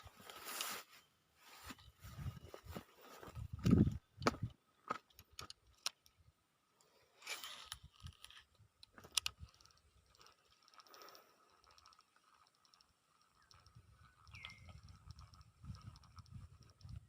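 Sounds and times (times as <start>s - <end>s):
short rustle: 0.0s - 3.5s
small clicks and knocks: 3.3s - 6.2s, 6.8s - 17.0s
faint fast high ticking: 8.8s - 17.0s.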